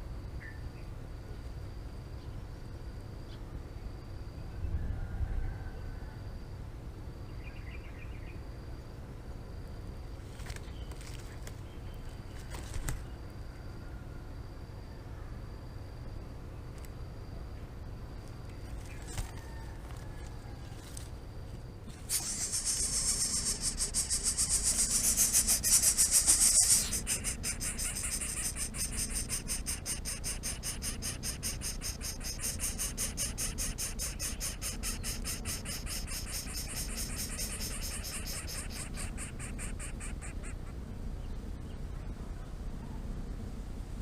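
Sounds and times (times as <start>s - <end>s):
insect buzzing: 21.9s - 40.6s.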